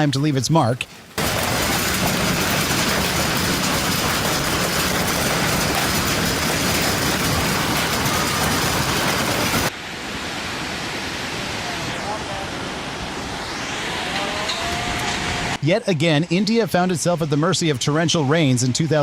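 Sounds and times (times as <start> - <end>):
hailstones clattering: 0.8 - 9.7
steady rushing noise: 0.8 - 15.7.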